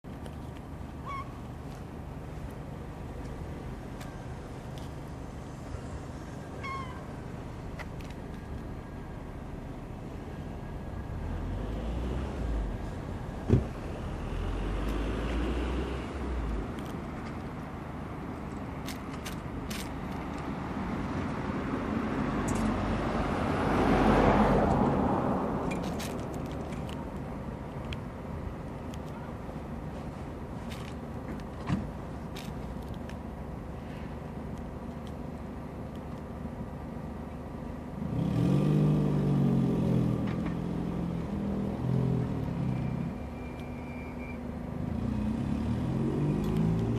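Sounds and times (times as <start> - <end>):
traffic noise: 0.0 - 46.9
low engine rumble: 0.1 - 38.2
motor vehicle passing: 22.0 - 26.9
vehicle engine revving: 38.0 - 43.0, 44.8 - 46.9.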